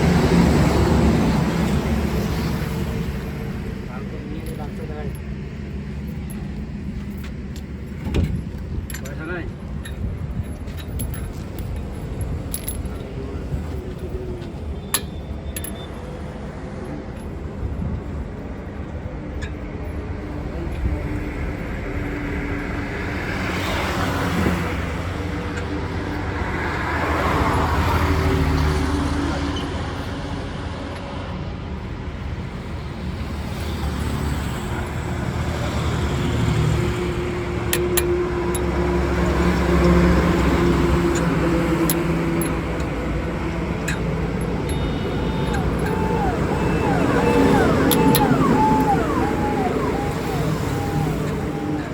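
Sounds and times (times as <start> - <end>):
low rumble of motor vehicles: 0.0 - 51.9
steady hum: 43.7 - 51.9.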